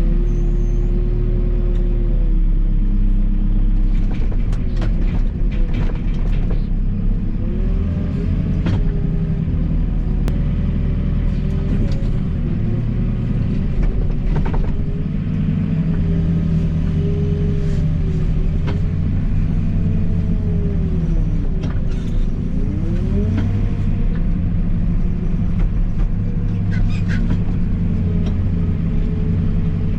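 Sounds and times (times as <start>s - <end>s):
loader diesel engine revving: 14.8s - 29.9s.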